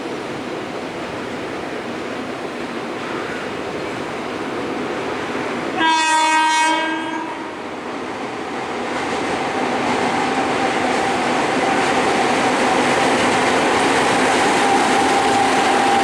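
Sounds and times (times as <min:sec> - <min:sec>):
train wheels rumbling on track: 0:00.0 - 0:16.0
train horn blast: 0:05.8 - 0:07.6.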